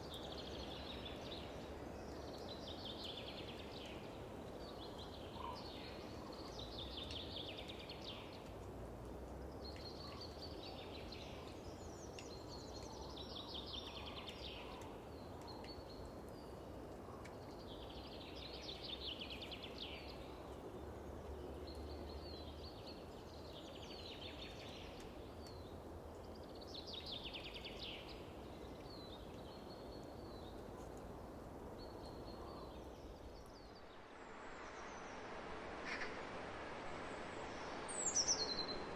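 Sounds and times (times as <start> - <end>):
songbird singing: 0.0 - 8.7, 9.4 - 38.9
field ambience: 32.8 - 38.9.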